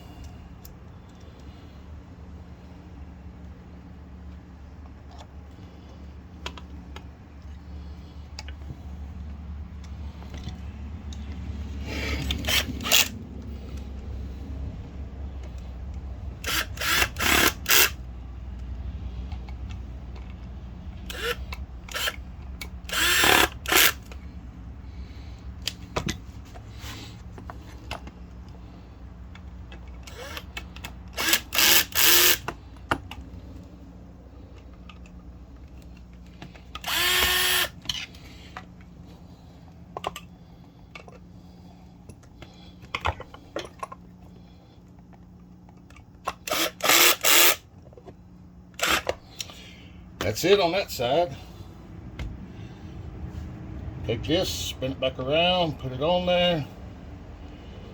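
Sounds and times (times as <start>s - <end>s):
cordless drill driving screws: 12.2s - 13.2s, 16.4s - 18.0s, 21.1s - 22.2s, 22.9s - 24.2s, 30.1s - 32.5s, 36.8s - 37.8s, 46.4s - 47.6s, 48.8s - 49.2s.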